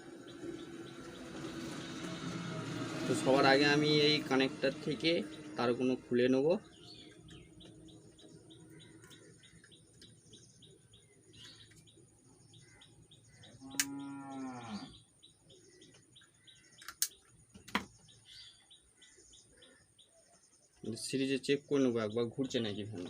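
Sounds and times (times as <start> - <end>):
faint bird chirps: 5.2 - 23.0
sharp clicks: 16.8 - 17.8.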